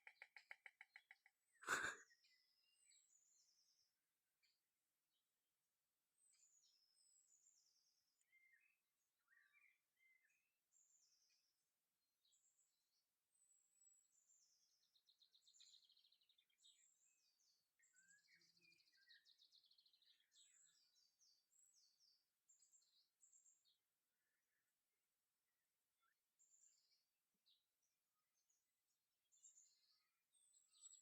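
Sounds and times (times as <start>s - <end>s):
small birds chirping and trilling: 0.0s - 5.2s, 6.2s - 11.6s, 12.2s - 24.8s, 26.0s - 31.0s.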